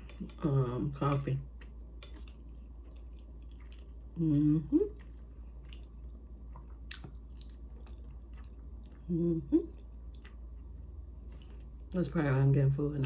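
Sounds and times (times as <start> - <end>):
person chewing soft food: 1.4 - 12.0
person humming: 9.1 - 9.7.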